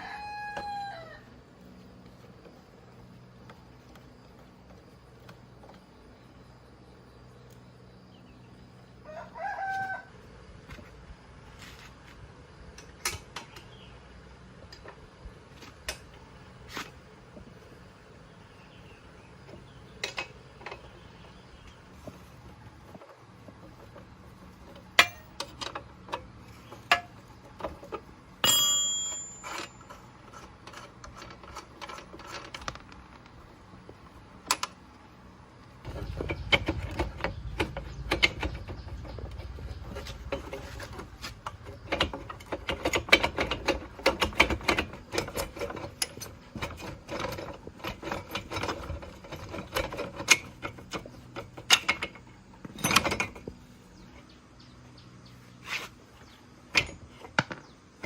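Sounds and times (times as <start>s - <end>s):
metal tool clink: 28.4s - 30.1s
rapid metallic clicks and rattling: 35.8s - 53.6s.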